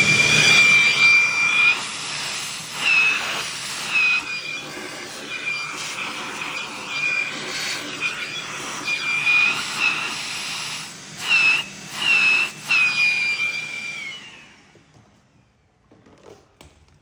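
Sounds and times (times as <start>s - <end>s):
compressed air blow gun hissing: 0.0s - 13.0s.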